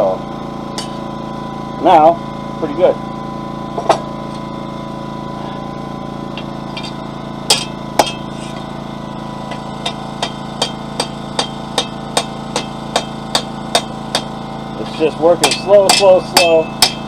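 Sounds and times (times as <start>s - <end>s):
generator droning: 0.0s - 17.0s
hammer striking hot steel: 0.7s - 1.0s, 6.4s - 8.7s, 9.4s - 17.0s.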